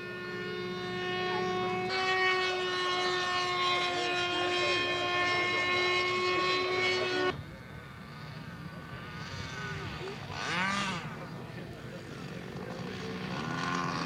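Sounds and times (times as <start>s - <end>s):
model plane fan whine: 0.0s - 14.0s.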